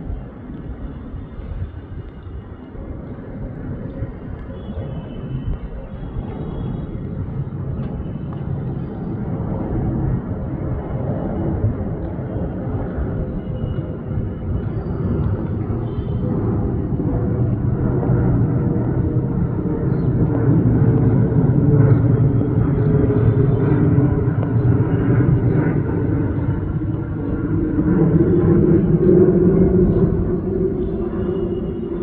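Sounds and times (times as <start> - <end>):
jet engines rumbling: 0.0 - 32.0.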